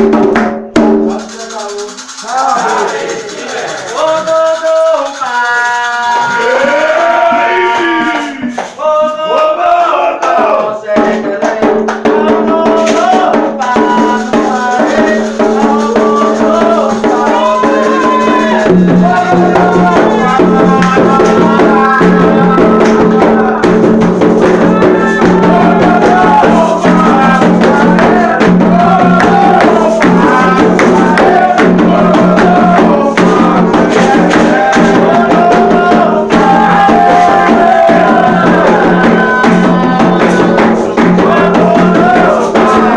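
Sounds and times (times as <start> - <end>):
drums: 0.0 - 4.8, 5.9 - 42.9
people singing: 0.0 - 42.9
shaken rattle: 1.0 - 6.7, 12.9 - 21.6, 25.4 - 35.4.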